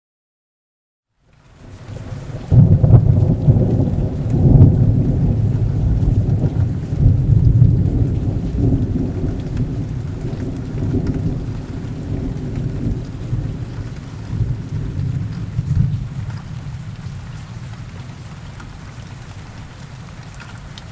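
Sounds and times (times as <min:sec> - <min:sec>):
rain falling: 0:01.1 - 0:20.9
deep rolling thunder: 0:01.9 - 0:18.3.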